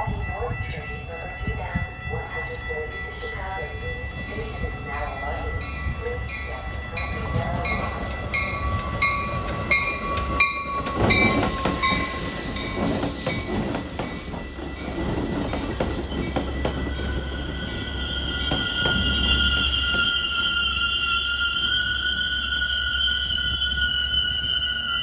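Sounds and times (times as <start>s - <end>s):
train wheels rumbling on rails: 0.0s - 25.0s
bell ringing: 0.3s - 13.6s, 14.7s - 25.0s
high wheel squeal: 16.0s - 25.0s.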